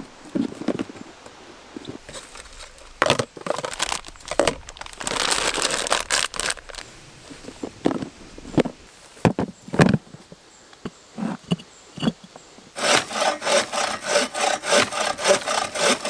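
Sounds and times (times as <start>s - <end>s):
dry material crinkling and tearing: 2.1s - 6.9s.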